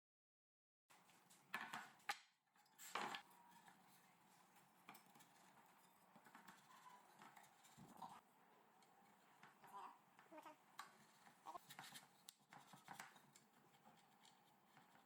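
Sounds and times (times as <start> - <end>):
light knocks and clatters: 0.9 - 8.2.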